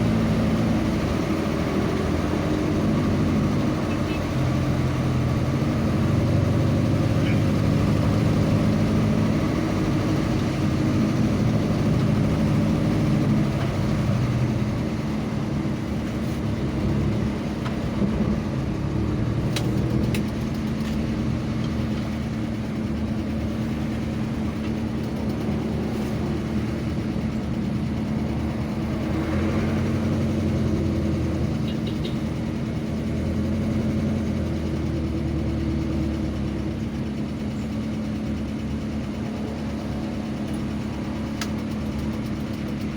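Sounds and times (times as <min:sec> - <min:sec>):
low road rumble: 0:00.0 - 0:42.9
vehicle engine running: 0:00.0 - 0:42.9.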